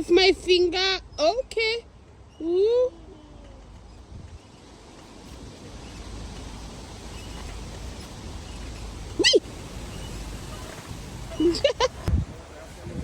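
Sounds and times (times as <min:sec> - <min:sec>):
outdoor hiss: 0:00.0 - 0:13.0
wind buffeting microphone: 0:03.6 - 0:13.0.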